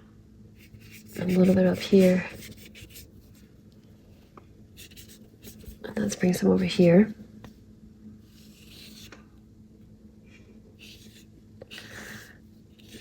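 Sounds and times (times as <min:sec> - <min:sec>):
paintbrush stroking paper: 0:00.6 - 0:03.4, 0:04.8 - 0:07.0, 0:08.3 - 0:09.1.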